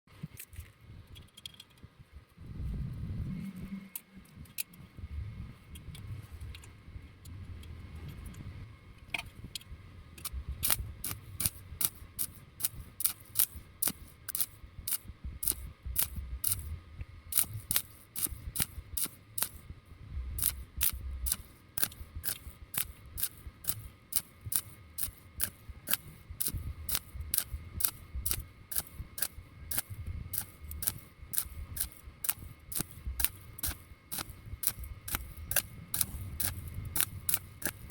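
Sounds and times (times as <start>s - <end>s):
welding crackling clicks: 9.1s - 19.7s, 20.4s - 37.9s.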